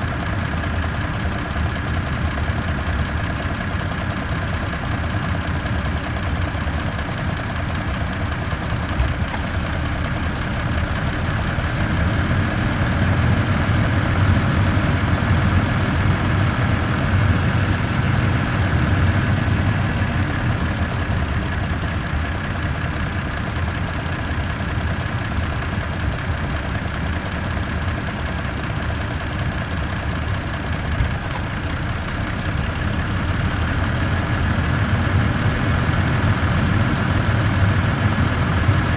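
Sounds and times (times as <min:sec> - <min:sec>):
helicopter-like whirring: 0:00.0 - 0:38.9
pickup truck engine running: 0:00.0 - 0:38.9.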